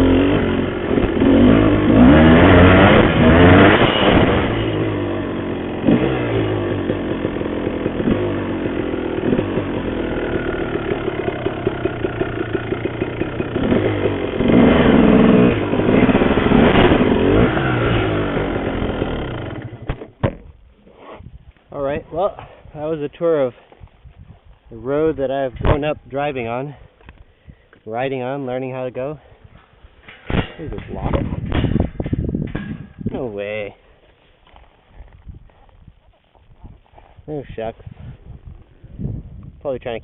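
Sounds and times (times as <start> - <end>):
dirt bike engine revving: 0.0 - 20.2.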